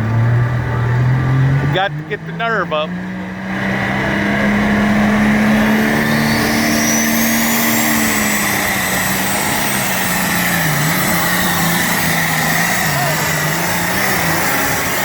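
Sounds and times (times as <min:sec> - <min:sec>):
tractor engine at full throttle: 0:00.0 - 0:15.0
high turbo whistle: 0:04.4 - 0:15.0.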